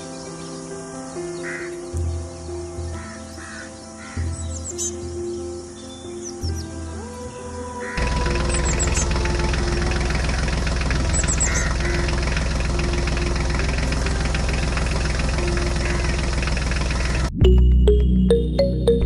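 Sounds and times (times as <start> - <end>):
diesel water pump engine knocking: 8.0 - 17.3.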